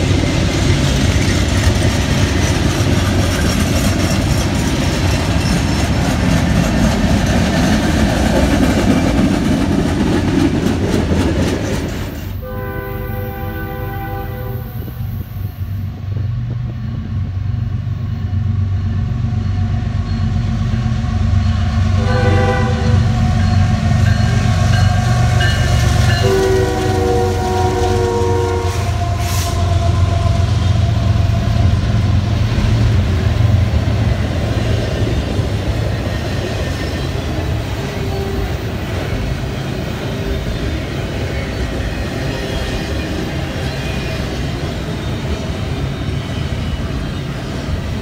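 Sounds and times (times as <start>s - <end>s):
locomotive engines rumbling: 0.0s - 48.0s
train wheels rumbling on rail: 0.0s - 48.0s
locomotive horn blasts: 12.4s - 14.9s, 22.0s - 23.2s, 25.0s - 30.4s.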